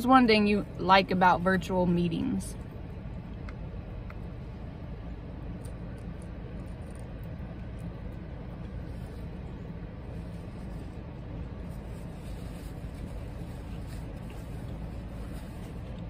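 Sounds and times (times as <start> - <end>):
person chewing: 5.5 - 9.6.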